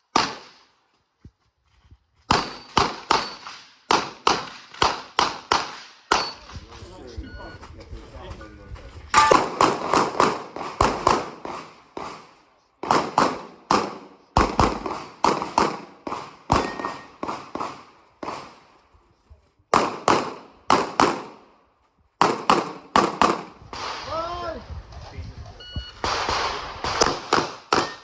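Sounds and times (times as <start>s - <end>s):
pistol firing rapid shots: 0.1s - 0.5s, 2.3s - 6.4s, 9.2s - 18.6s, 19.7s - 21.4s, 22.2s - 24.0s, 26.0s - 28.0s.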